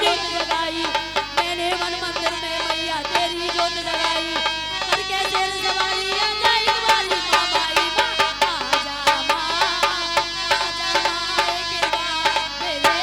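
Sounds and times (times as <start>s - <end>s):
steady drum beats: 0.0s - 11.9s
instrumental melody: 0.0s - 13.0s.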